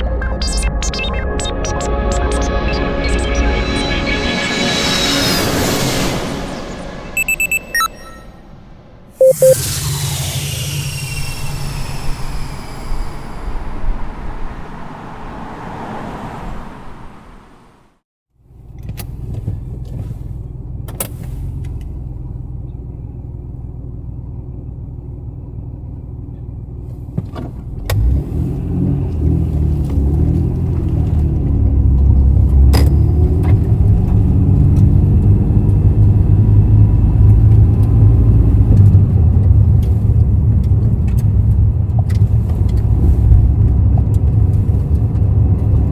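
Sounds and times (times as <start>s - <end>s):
car engine low rumble: 9.3s - 45.9s.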